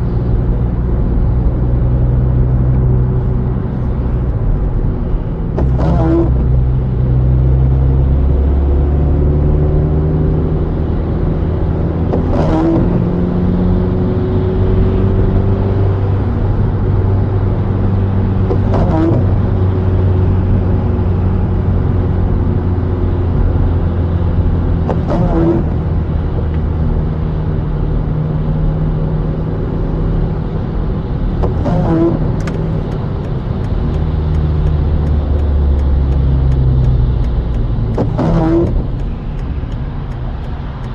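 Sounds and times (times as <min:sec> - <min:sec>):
car engine and road rumble: 0:00.0 - 0:40.9
windshield wipers squeak and knock: 0:05.6 - 0:06.6, 0:12.1 - 0:13.1, 0:18.4 - 0:19.4, 0:24.9 - 0:25.8, 0:31.3 - 0:40.9.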